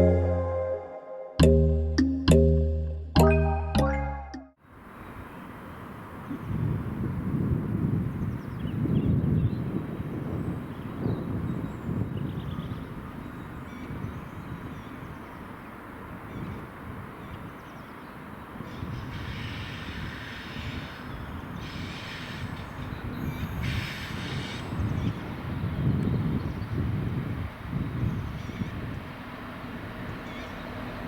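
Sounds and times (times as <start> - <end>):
train rumbling on rails: 19.0 - 31.0.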